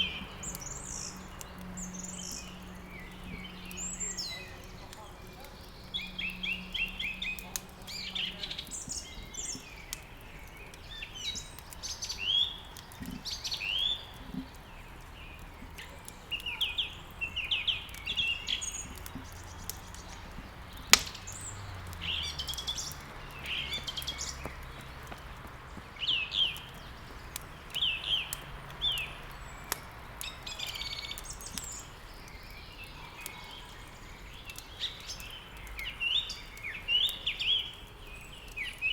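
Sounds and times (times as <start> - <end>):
light crackling: 0.0 - 38.9
songbirds chirping and singing: 0.0 - 38.9
sharp snap: 20.7 - 23.0.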